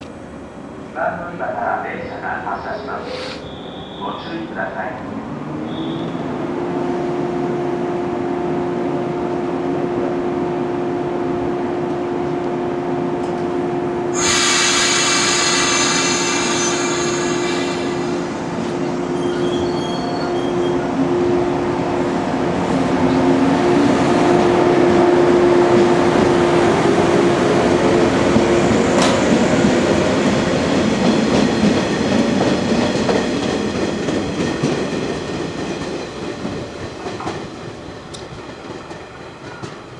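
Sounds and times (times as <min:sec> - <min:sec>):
train motor hum: 0:01.0 - 0:39.9
loud high horn blast: 0:05.6 - 0:06.8, 0:14.0 - 0:20.8.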